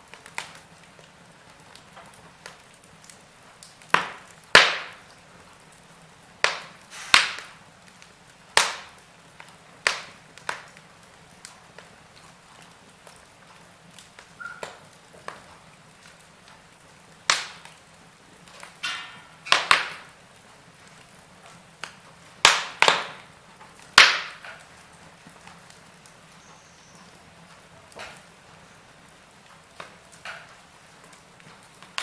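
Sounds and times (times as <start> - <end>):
firewood crackling: 0.0 - 32.0
sharp loud pops: 3.9 - 5.0, 6.4 - 7.6, 24.0 - 24.5.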